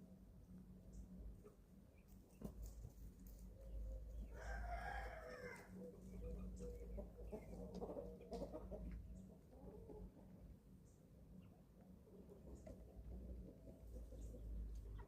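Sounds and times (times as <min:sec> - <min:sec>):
chickens clucking and chirping: 0:00.4 - 0:15.0
chickens calling: 0:01.4 - 0:10.5, 0:12.2 - 0:15.0.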